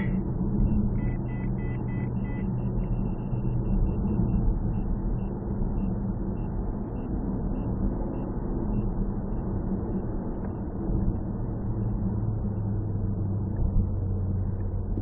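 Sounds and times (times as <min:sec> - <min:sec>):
car engine and road noise: 0:00.0 - 0:15.0
faint short high beeps: 0:01.0 - 0:03.5.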